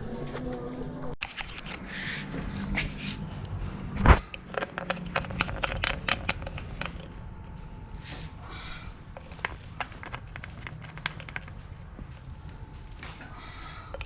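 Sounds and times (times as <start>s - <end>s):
low steady hum: 0.0s - 14.0s
objects being handled clicking: 4.2s - 7.7s, 9.1s - 14.0s.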